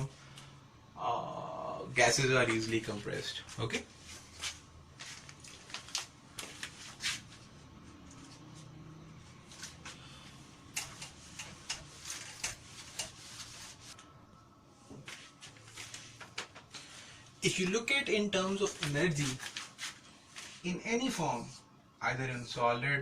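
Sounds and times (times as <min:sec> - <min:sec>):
paper rustling: 0:03.5 - 0:07.4, 0:18.6 - 0:20.7.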